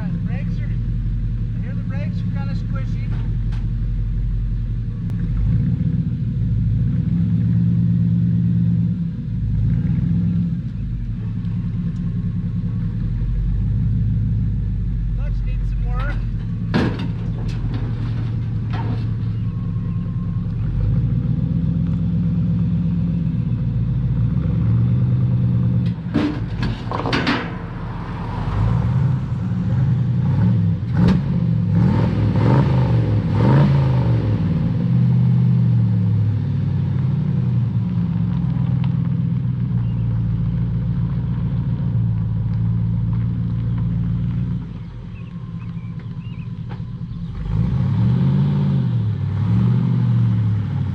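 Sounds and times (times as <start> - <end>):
pickup truck engine revving: 0.0 - 50.9
engine knocks: 10.7 - 21.3, 25.8 - 31.4.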